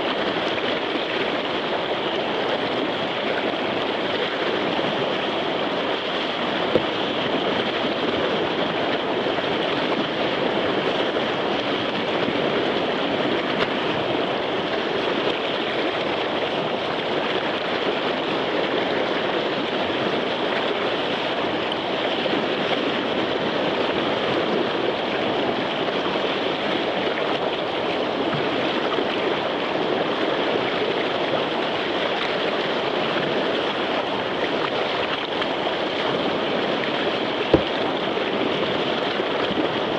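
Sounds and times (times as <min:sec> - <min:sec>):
river rapid rushing: 0:00.0 - 0:39.9
brief knock: 0:37.5 - 0:37.8.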